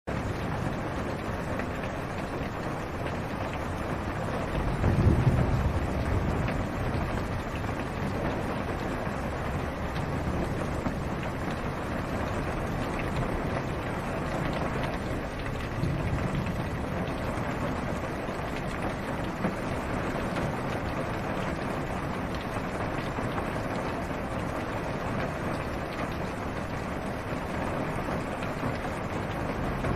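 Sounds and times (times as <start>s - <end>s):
rain on car roof: 0.1s - 29.9s
distant thunder rumble: 3.5s - 21.2s, 27.9s - 29.9s.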